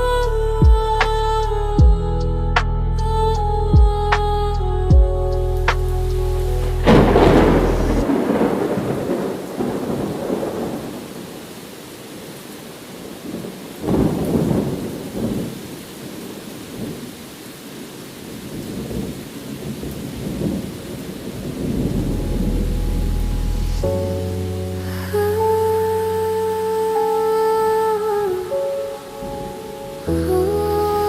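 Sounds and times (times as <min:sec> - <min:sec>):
thunder rumbling: 0:03.0 - 0:11.5, 0:13.2 - 0:15.7, 0:18.5 - 0:26.6
steady rain: 0:05.3 - 0:31.0.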